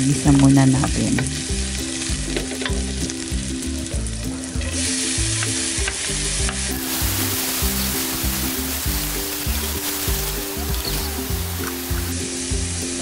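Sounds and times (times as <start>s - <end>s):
onion sizzling in hot oil: 0.0s - 13.0s
soft background music: 0.0s - 13.0s
wooden spatula stirring in wok: 5.8s - 12.1s.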